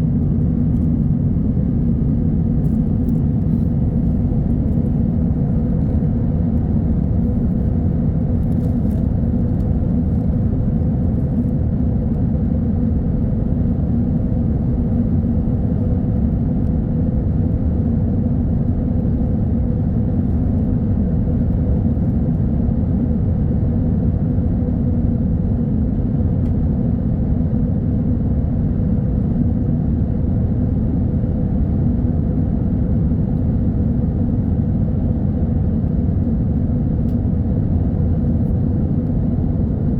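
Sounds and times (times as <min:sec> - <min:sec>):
faint constant hum: 0:00.0 - 0:39.9
jet airliner cabin rumble: 0:00.0 - 0:39.9.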